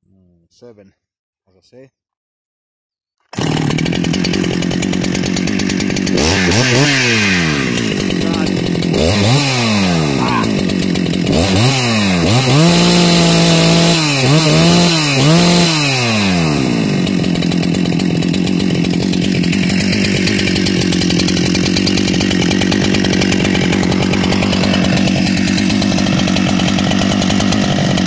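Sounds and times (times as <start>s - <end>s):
chainsaw revving and idling: 3.2s - 28.0s.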